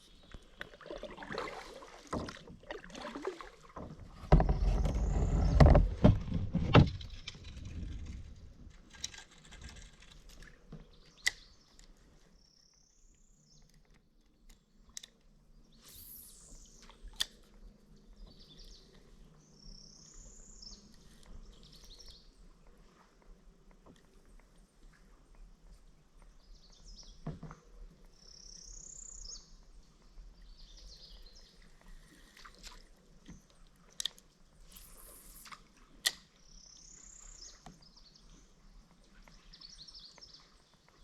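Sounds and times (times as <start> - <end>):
paddle strokes splashing water: 0.0 - 6.8
low rumbling handling noise: 3.8 - 11.0.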